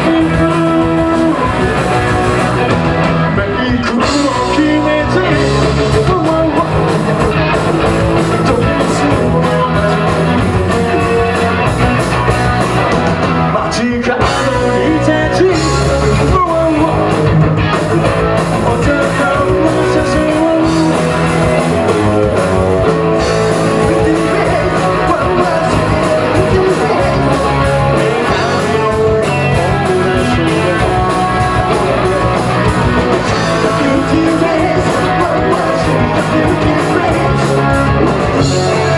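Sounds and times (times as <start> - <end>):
bass guitar: 0.0 - 38.9
distorted electric guitars: 0.0 - 38.9
drums: 0.0 - 38.9
shouted vocals: 13.5 - 38.9.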